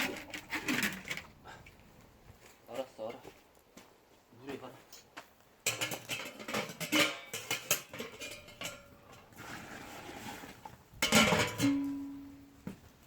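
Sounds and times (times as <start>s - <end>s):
kitchenware clattering: 5.7s - 8.9s, 11.0s - 12.0s.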